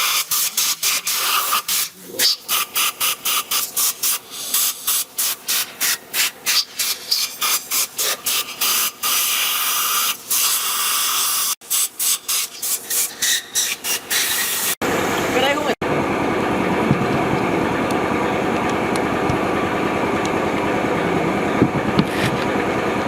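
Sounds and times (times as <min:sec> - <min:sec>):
hissing air bursts: 0:00.0 - 0:14.8.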